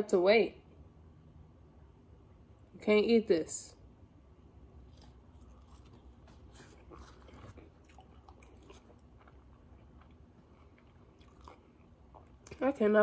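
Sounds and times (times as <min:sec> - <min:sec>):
person chewing food: 0:04.7 - 0:12.6.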